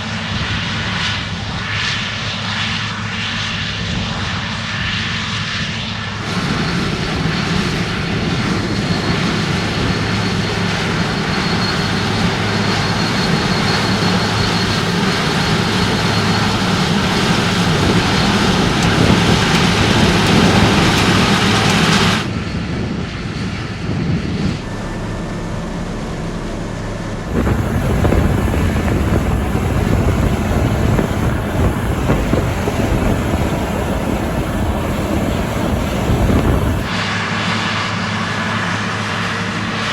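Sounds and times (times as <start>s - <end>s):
engine hum: 6.1s - 39.9s
threshing machinery noise: 6.2s - 22.4s, 24.4s - 37.0s.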